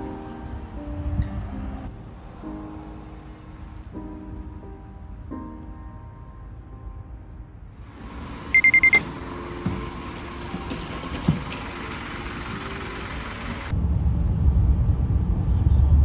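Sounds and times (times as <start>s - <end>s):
street and vehicle background: 7.9s - 13.9s
high electronic beeps: 8.1s - 9.4s.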